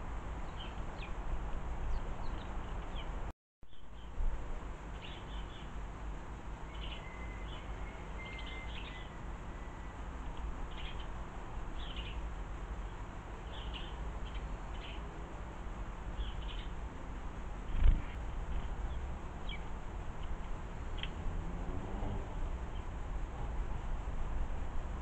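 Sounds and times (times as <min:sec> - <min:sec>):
small birds chirping: 0:00.4 - 0:01.2, 0:01.8 - 0:04.2, 0:04.9 - 0:05.8, 0:06.6 - 0:15.1, 0:16.0 - 0:16.8, 0:17.6 - 0:21.2
faint thin whistle: 0:07.0 - 0:09.9
steady low rumble: 0:07.5 - 0:21.6.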